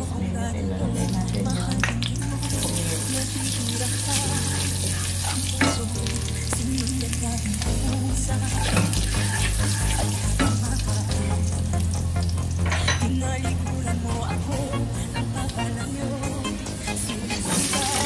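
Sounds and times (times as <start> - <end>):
background music with bass line: 0.0 - 18.0
seeds sizzling in hot oil: 2.4 - 12.8, 17.4 - 18.0
wooden spoon stirring pot: 8.2 - 11.1.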